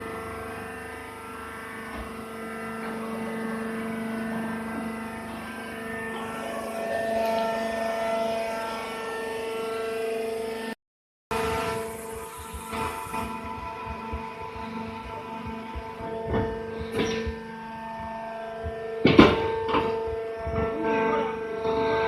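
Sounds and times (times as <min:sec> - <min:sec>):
baling press mechanical drone: 0:11.3 - 0:22.0.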